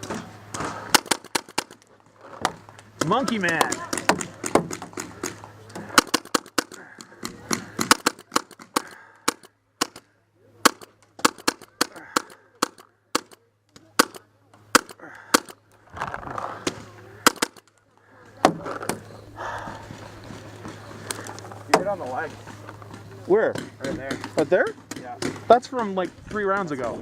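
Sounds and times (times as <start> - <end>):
paintball markers firing: 0.0 - 15.6, 16.5 - 19.1, 22.8 - 27.0.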